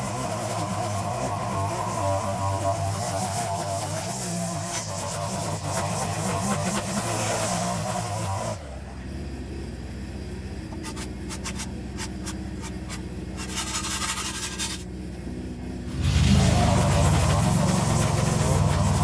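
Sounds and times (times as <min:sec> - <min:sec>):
engine hum: 0:00.0 - 0:19.0
scraping and crackling: 0:10.7 - 0:14.9.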